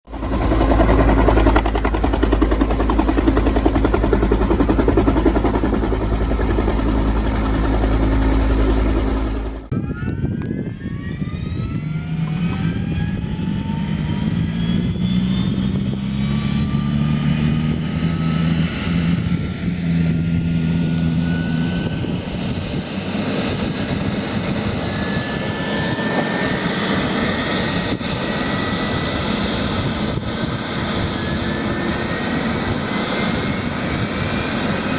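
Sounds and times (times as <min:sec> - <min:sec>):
loud steady low rumble: 0:00.1 - 0:09.9
low rotor hum: 0:00.1 - 0:34.9
turbine engine whine rising: 0:00.1 - 0:34.9.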